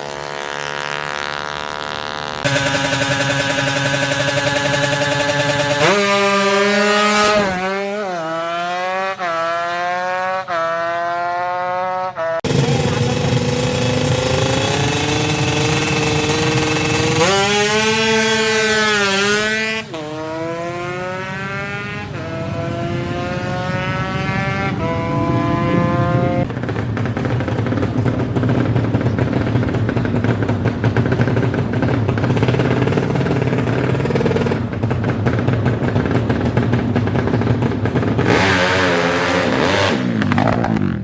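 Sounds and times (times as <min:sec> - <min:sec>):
racing engine shifting gears: 0:00.0 - 0:41.0.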